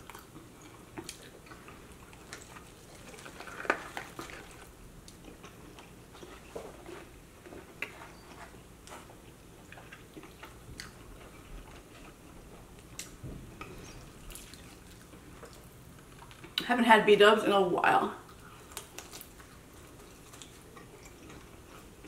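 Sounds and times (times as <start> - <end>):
chewing and biting food: 0.0 - 16.6, 18.3 - 22.0.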